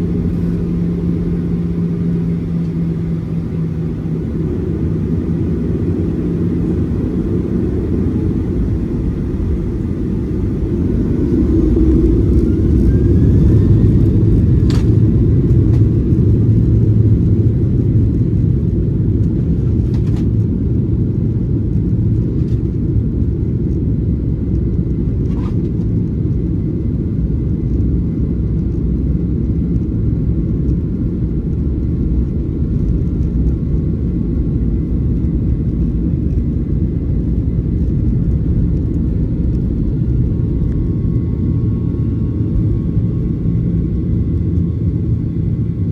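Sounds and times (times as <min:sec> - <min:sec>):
faint rising whine: 0:00.0 - 0:18.4, 0:35.8 - 0:45.9
aircraft cabin engine rumble: 0:00.0 - 0:45.9.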